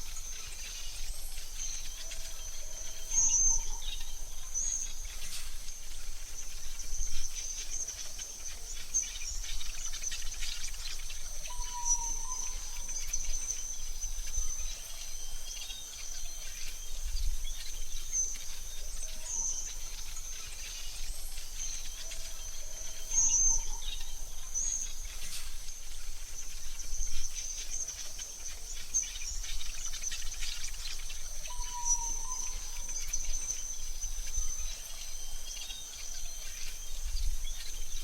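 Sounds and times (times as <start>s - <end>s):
high insect trill: 0.0s - 38.0s.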